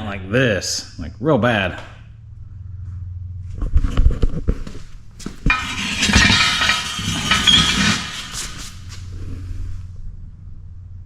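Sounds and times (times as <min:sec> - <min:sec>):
metal rattling and scraping: 0:05.2 - 0:09.2
metal parts clanking: 0:05.5 - 0:09.0.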